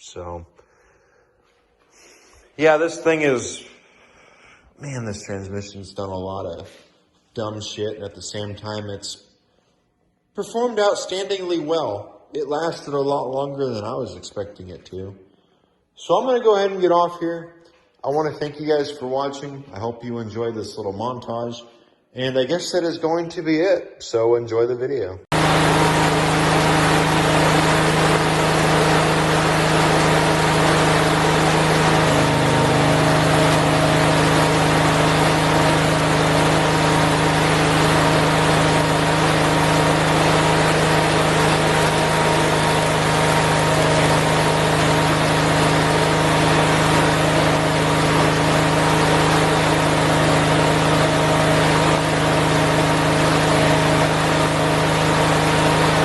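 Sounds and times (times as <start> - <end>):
small tractor engine running: 25.3 - 56.0.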